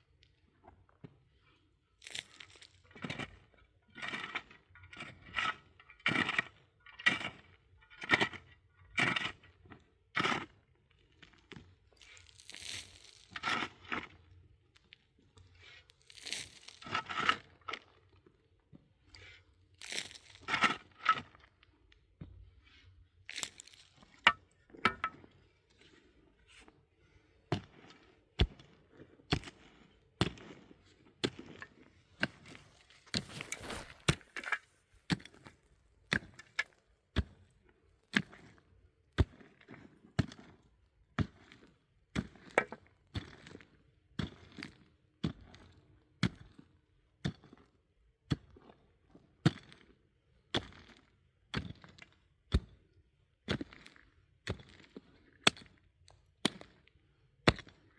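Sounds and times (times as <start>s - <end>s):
crunching scrapes: 29.4s - 36.8s.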